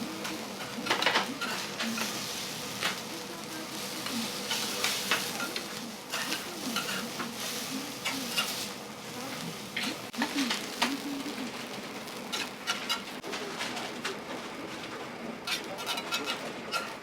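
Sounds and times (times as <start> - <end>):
food sizzling on a griddle: 0.0 - 13.2, 15.5 - 17.0
metal spatulas scraping and clacking: 0.6 - 2.2, 4.4 - 8.7, 12.3 - 13.2, 15.5 - 17.0.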